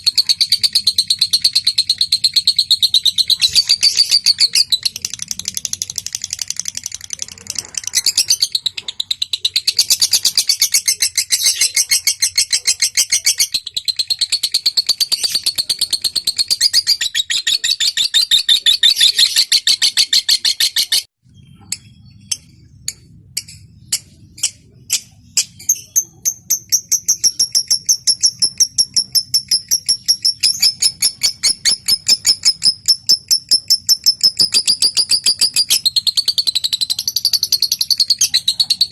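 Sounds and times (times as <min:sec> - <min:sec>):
lovebird chattering trill: 0:00.0 - 0:21.1, 0:21.7 - 0:38.9.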